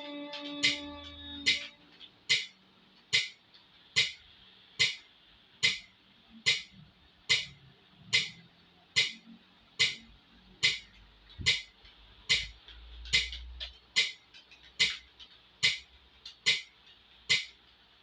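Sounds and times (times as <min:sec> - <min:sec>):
metronome ticking: 0:00.0 - 0:03.4, 0:05.6 - 0:05.9, 0:06.5 - 0:17.8.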